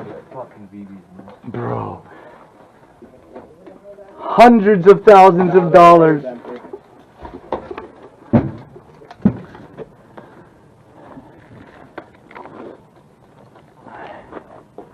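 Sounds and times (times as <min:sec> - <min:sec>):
loud thumps: 0:08.3 - 0:09.6.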